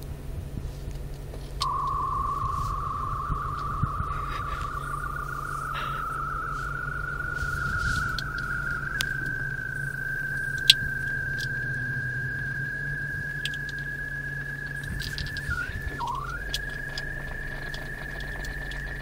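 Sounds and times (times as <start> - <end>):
low hum: 0.0 - 19.0
warbling electronic whine: 1.6 - 19.0.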